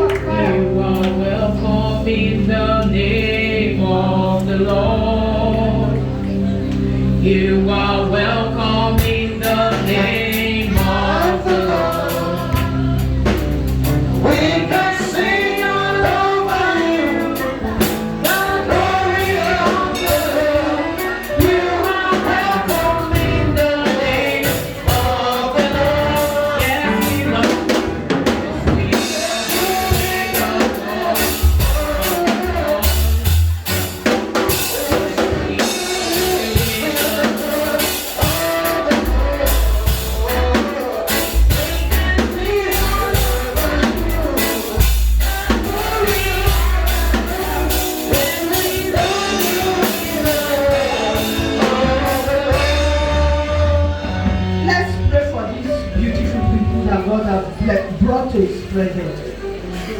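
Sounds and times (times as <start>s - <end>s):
congregation singing gospel: 0.0s - 59.9s
heavy bass: 0.0s - 59.9s
drum kit beat: 8.7s - 57.1s.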